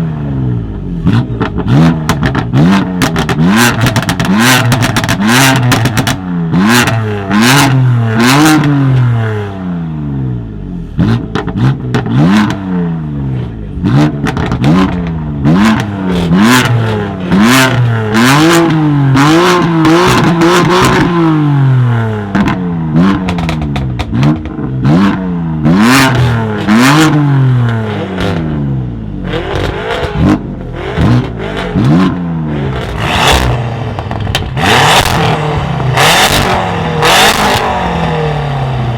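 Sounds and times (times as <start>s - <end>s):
car engine revving: 0.0s - 38.9s
exhaust pops and bangs: 1.1s - 6.2s, 11.0s - 12.6s, 14.0s - 16.3s, 22.3s - 24.8s, 29.4s - 32.2s, 32.8s - 37.8s.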